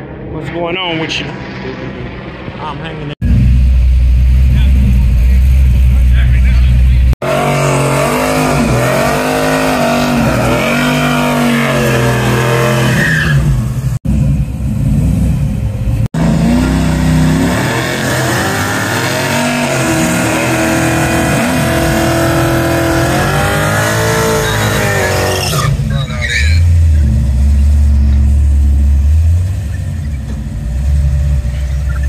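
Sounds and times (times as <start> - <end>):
race car engines revving: 0.0 - 32.0.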